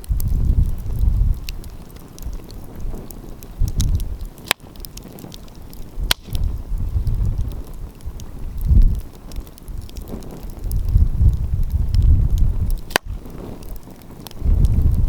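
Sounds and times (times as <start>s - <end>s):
wind gusts on microphone: 0.0s - 15.0s
wood fire crackling: 0.0s - 15.0s
sharp loud pops: 6.0s - 6.5s, 12.8s - 13.2s.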